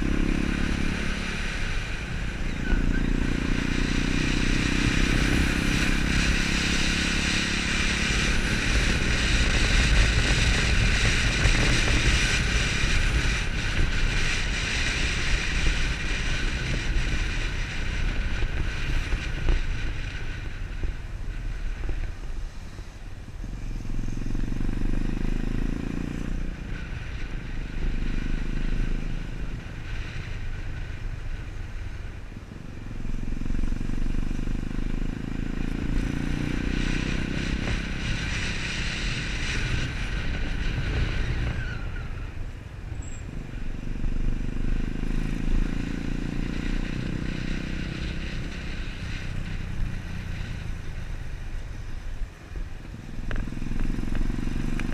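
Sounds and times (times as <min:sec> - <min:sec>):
wind rush: 0:00.0 - 0:24.1, 0:35.3 - 0:54.9
motorcycle engine accelerating: 0:00.0 - 0:54.9.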